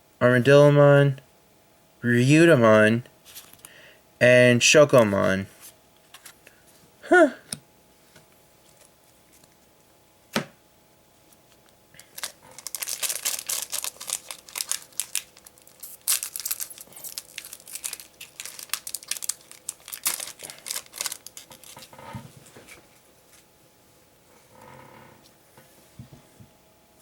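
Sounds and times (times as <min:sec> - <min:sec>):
foil wrapper tearing and crinkling: 0:12.0 - 0:21.9.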